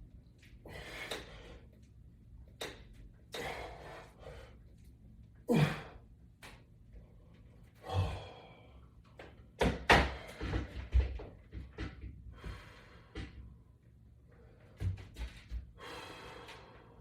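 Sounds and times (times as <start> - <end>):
man exhaling and sighing: 5.5 - 6.0, 7.8 - 8.7.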